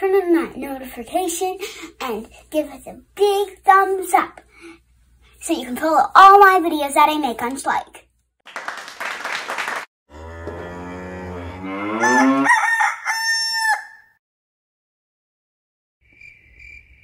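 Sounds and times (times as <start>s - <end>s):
rooster crowing: 11.9s - 14.2s
crickets chirping: 16.0s - 17.0s.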